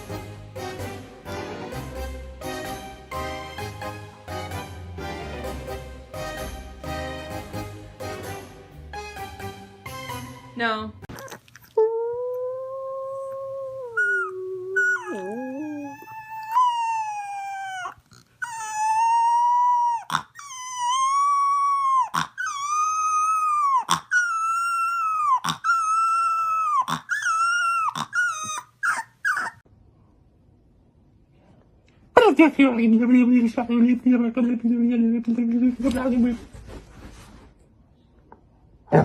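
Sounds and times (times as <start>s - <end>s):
dog howling: 11.8s - 29.6s.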